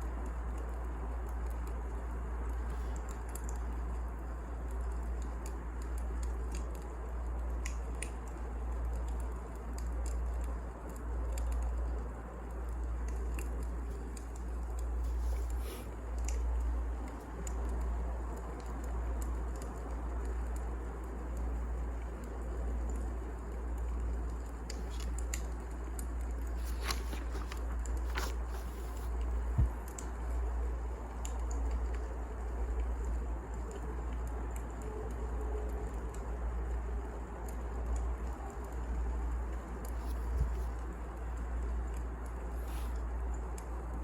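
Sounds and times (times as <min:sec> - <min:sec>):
burning logs crackling and popping: 0:00.0 - 0:44.0
fire rumbling: 0:00.0 - 0:44.0.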